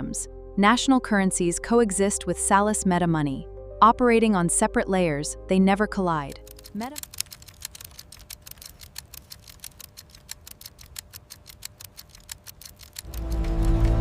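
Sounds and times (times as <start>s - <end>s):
music: 0.0s - 6.7s, 13.1s - 14.0s
rapid even ticking: 6.3s - 14.0s.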